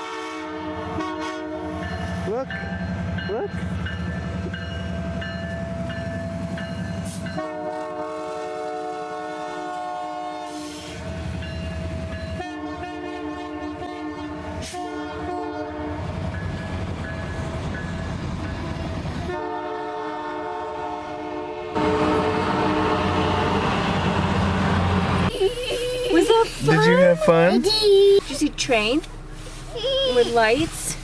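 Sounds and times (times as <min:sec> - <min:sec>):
locomotive air horn blasts: 0:00.0 - 0:02.1, 0:07.1 - 0:11.0, 0:12.4 - 0:16.1, 0:19.3 - 0:25.4
train rumbling: 0:00.6 - 0:31.0.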